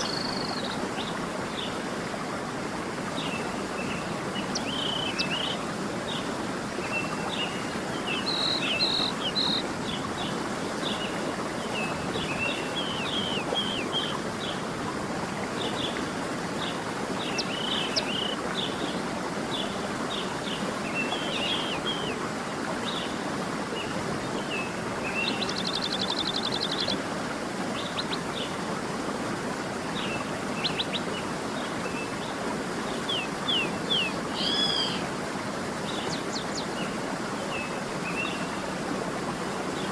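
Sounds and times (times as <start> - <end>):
flowing water: 0.0 - 39.9
songbirds chirping: 3.1 - 14.6.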